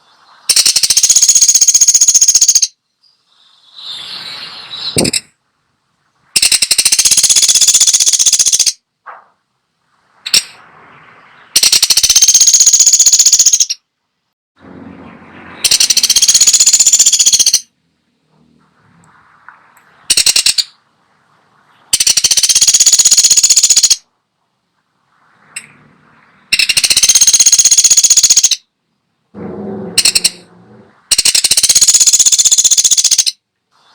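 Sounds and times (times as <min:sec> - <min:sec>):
woodpecker rattling calls: 0:00.5 - 0:02.8, 0:06.4 - 0:08.8, 0:10.2 - 0:10.6, 0:11.3 - 0:13.9, 0:15.5 - 0:17.7, 0:20.0 - 0:20.8, 0:21.9 - 0:24.1, 0:26.5 - 0:28.7, 0:29.7 - 0:33.4.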